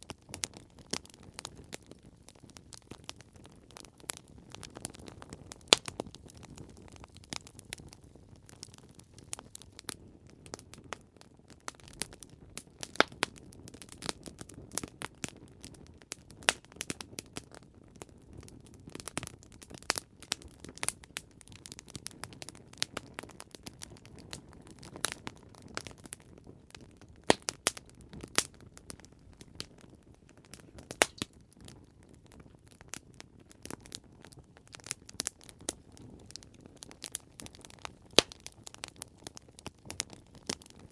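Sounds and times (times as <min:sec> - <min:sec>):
campfire crackling and popping: 0:00.0 - 0:40.9
low rumble of flames: 0:00.0 - 0:40.9.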